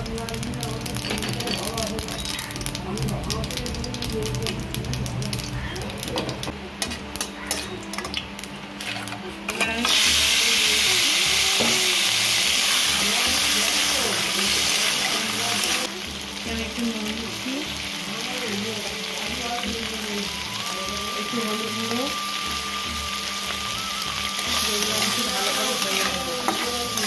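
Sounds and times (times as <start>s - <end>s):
crabs sizzling in hot oil: 0.0s - 27.0s
spices crackling in oil: 0.0s - 27.0s
spatula scraping pan: 24.8s - 27.0s.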